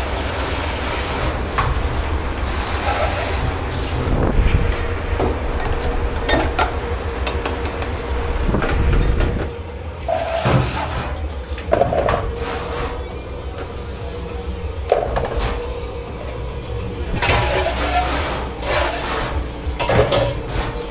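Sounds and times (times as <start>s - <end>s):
steady low hum: 0.0s - 20.9s
dishes and cutlery clattering: 19.6s - 20.9s.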